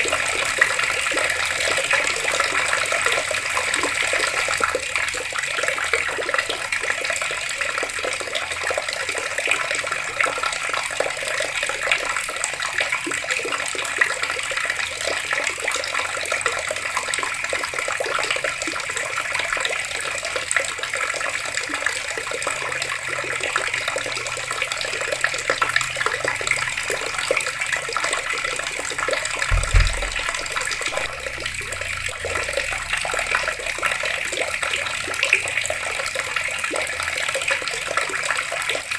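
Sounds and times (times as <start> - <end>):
water running from taps: 0.0 - 38.9
low thump: 29.5 - 32.6.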